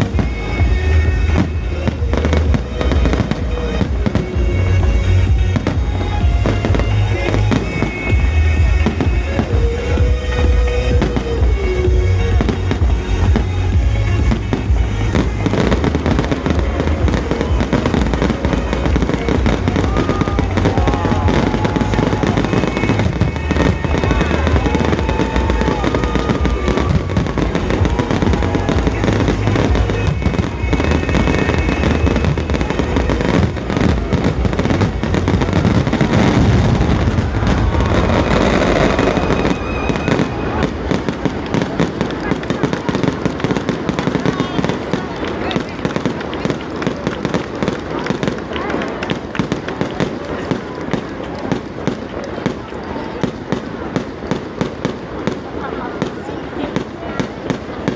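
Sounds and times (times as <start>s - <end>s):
loud music: 0.0s - 45.2s
fireworks bursting and crackling: 0.0s - 57.9s.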